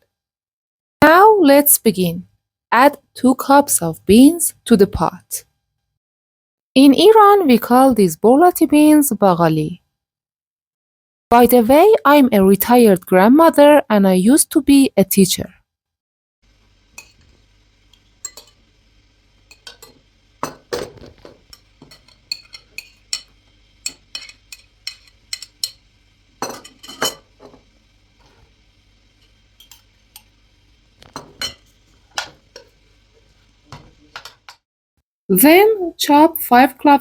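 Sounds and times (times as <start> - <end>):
utensils clinking on pots and dishes: 17.0 - 18.7, 19.5 - 28.5, 29.2 - 30.4, 31.0 - 34.6.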